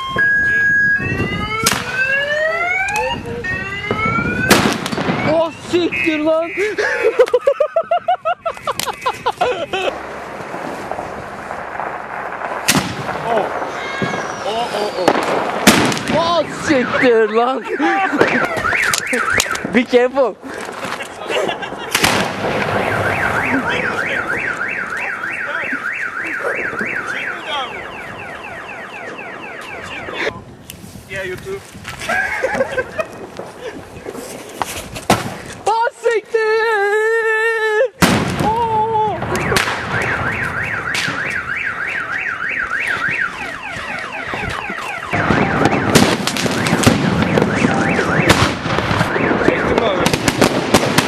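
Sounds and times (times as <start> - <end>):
car alarm warbling: 0.0 - 6.8, 16.2 - 19.7, 22.6 - 30.4, 39.2 - 48.4, 49.0 - 50.0
car alarm falling chirps: 0.0 - 9.8, 16.4 - 19.7, 22.6 - 30.2, 39.3 - 48.4
firecrackers banging: 0.0 - 36.1, 38.0 - 51.0.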